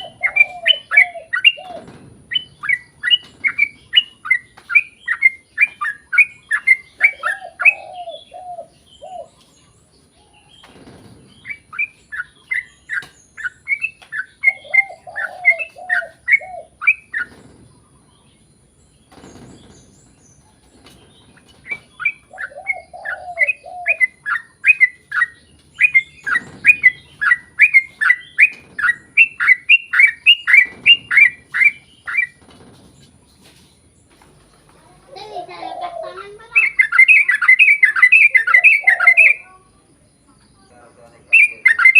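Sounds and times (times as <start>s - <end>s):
bird chattering song: 0.0s - 41.9s
bird warbling phrase: 35.1s - 39.9s.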